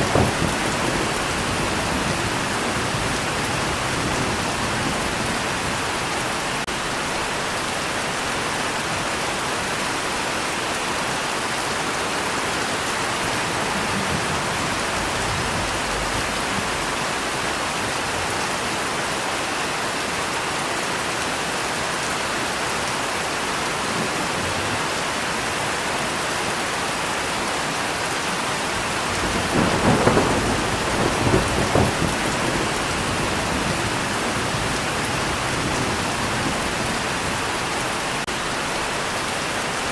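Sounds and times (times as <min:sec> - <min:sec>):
thunder rumble: 0:00.0 - 0:06.6, 0:13.0 - 0:18.2, 0:28.8 - 0:38.4
heavy rain falling: 0:00.0 - 0:39.9.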